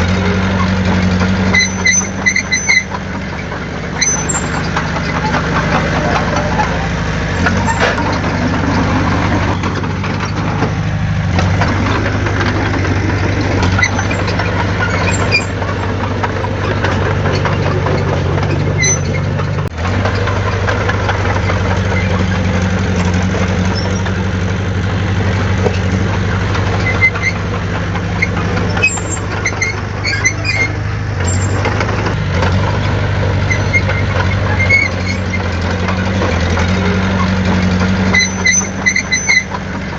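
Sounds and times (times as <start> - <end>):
heavy diesel engine droning: 0.0 - 39.9
short high-pitched squeaks: 1.4 - 10.6, 13.4 - 16.0, 16.6 - 19.6, 28.2 - 32.0, 33.4 - 35.6, 36.7 - 39.6.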